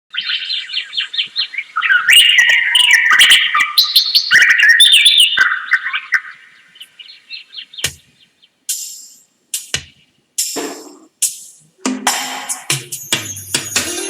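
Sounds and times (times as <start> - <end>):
birds chirping and twittering: 0.1 - 11.1.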